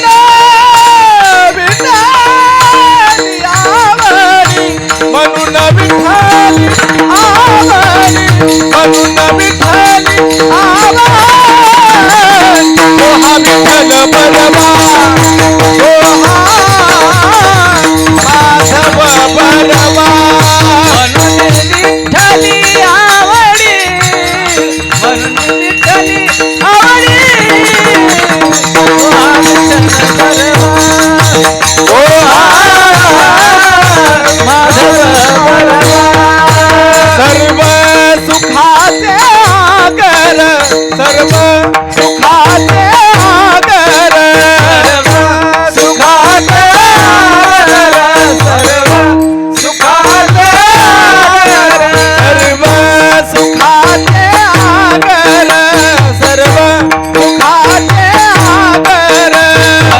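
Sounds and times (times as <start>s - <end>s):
hand drum playing: 0.0s - 47.4s
devotional singing: 0.0s - 59.9s.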